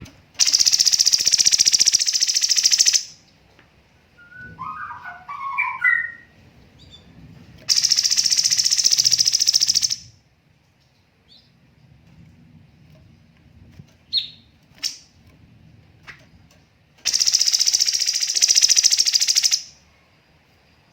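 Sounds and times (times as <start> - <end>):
songbird rapid high trills: 4.2 - 6.3
bird warbled phrase: 4.3 - 6.2.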